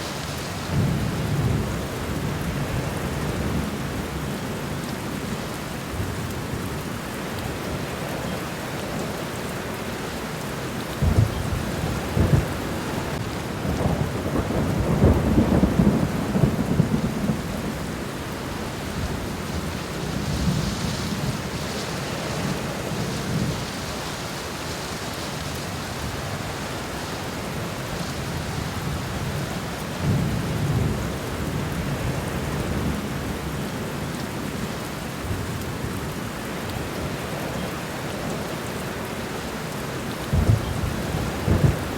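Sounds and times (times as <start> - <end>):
steady rain falling: 0.0 - 41.9
low rumbles of thunder: 11.0 - 21.8, 28.2 - 33.7, 40.2 - 41.9.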